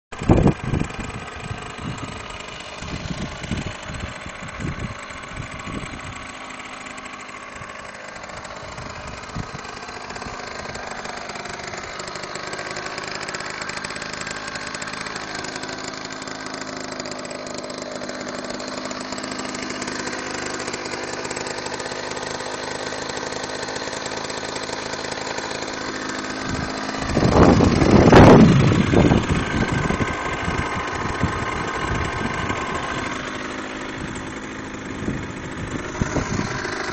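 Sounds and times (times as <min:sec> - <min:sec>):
moped engine idling: 0:00.1 - 0:36.9.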